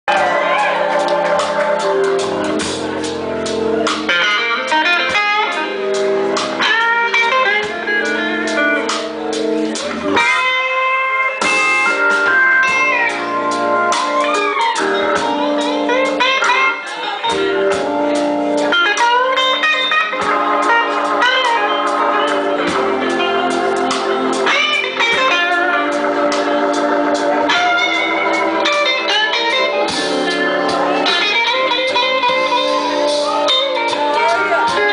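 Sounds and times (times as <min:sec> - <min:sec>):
blues band playing: 0:00.1 - 0:34.9
electric guitar sliding notes: 0:00.1 - 0:34.9.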